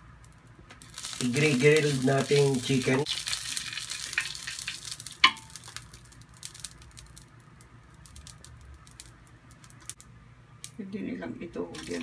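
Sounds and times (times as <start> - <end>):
oil sizzling on grill pan: 0.8 - 10.0.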